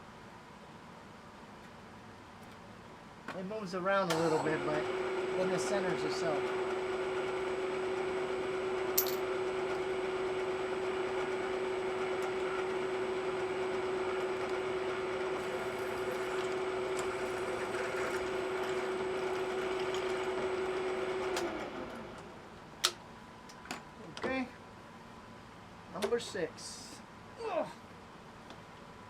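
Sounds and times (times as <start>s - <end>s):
metal lathe humming: 4.1s - 22.4s.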